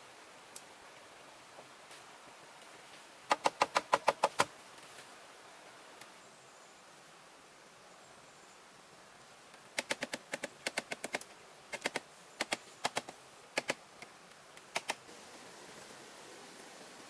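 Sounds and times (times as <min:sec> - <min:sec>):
sharp light clicks: 0:09.8 - 0:15.0.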